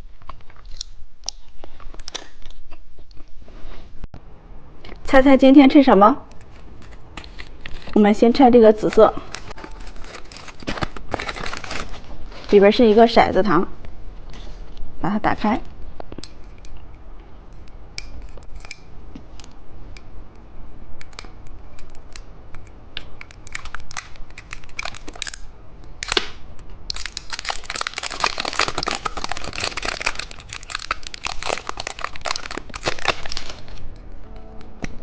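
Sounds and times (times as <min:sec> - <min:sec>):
plastic wrapper crinkling: 0:06.3 - 0:13.2, 0:23.2 - 0:26.2, 0:26.9 - 0:34.0.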